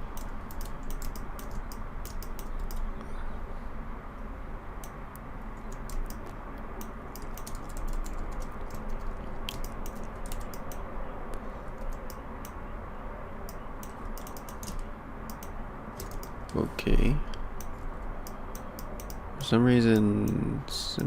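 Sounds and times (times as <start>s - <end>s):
low background hum: 0.0s - 21.0s
computer keyboard clicking: 0.1s - 2.9s, 5.6s - 10.8s, 11.8s - 12.6s, 13.5s - 16.4s, 17.6s - 19.2s.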